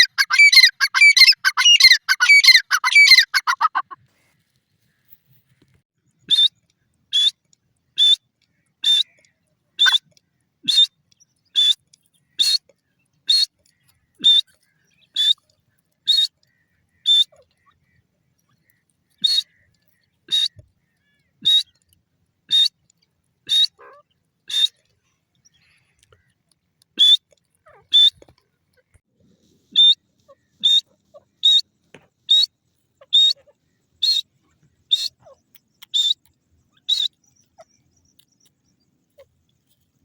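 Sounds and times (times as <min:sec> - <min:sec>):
bird calling sharp high notes: 0:00.0 - 0:03.9.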